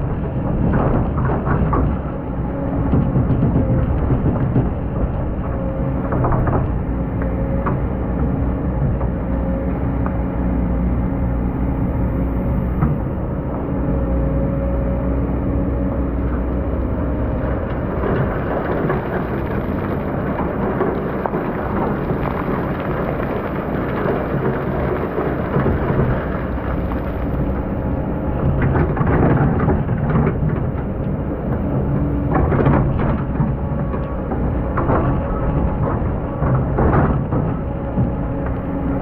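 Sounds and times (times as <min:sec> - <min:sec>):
diesel engine running under load: 0:00.0 - 0:39.0.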